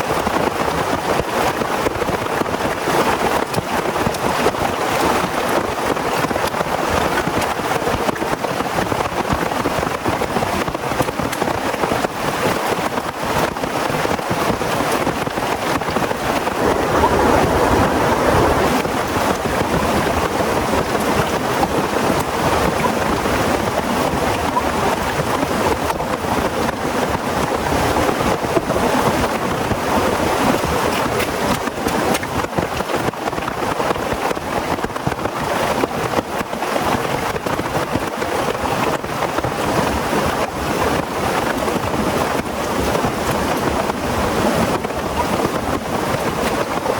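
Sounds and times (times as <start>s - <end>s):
heavy rain falling: 16.1s - 23.5s.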